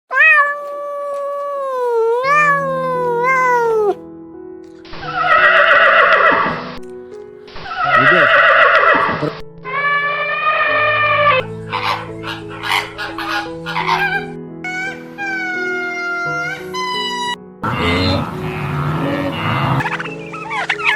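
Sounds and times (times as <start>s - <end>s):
background music: 0.2s - 20.9s
harsh animal calls: 19.7s - 20.9s
wavering animal call: 19.8s - 20.9s.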